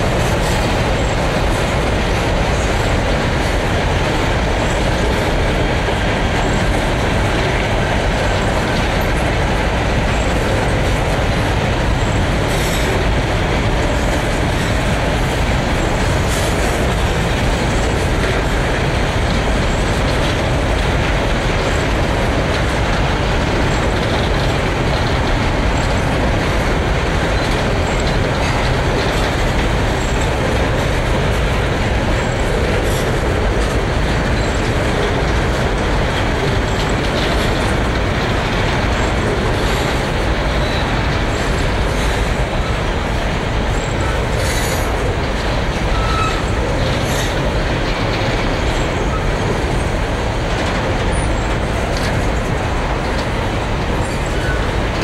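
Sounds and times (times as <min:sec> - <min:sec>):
freight train wheels rumbling: 0:00.0 - 0:55.0
high wheel squeaks: 0:45.8 - 0:47.5.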